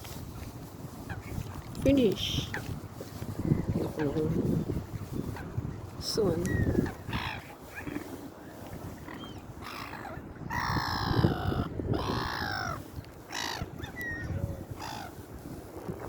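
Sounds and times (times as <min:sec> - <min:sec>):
seagulls calling: 0:06.4 - 0:15.3.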